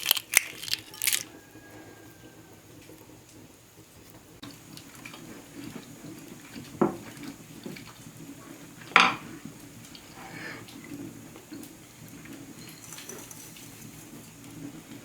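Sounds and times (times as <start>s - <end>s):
cookware clinking and scraping: 8.8s - 9.4s, 12.6s - 14.6s.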